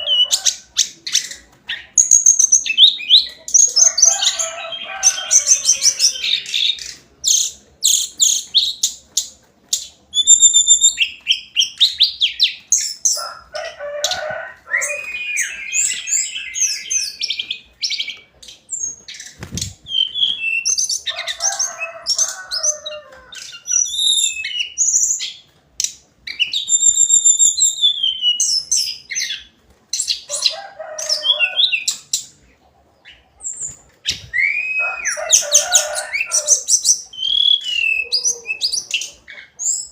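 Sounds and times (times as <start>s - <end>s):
bird singing whistled phrases: 10.2s - 12.1s, 14.7s - 17.4s, 19.8s - 20.9s, 23.6s - 25.4s, 26.4s - 29.0s, 34.1s - 35.1s, 37.1s - 39.0s.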